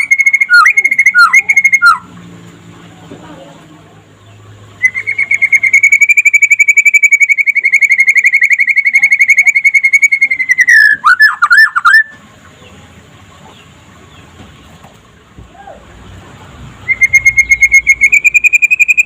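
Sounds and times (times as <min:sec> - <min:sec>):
bird singing rapid trill: 0:00.0 - 0:02.2, 0:04.2 - 0:12.8, 0:16.8 - 0:19.0.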